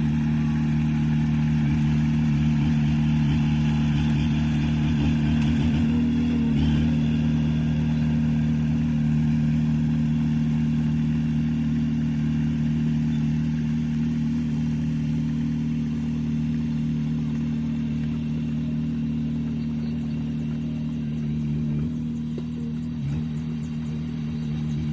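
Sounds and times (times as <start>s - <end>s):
heavy diesel engine running: 0.0s - 24.9s.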